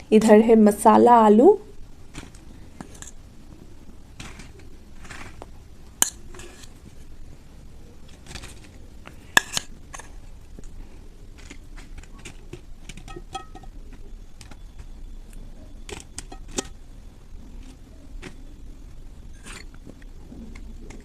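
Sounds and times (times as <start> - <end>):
spoon scraping and clinking dishes: 19.4 - 19.7.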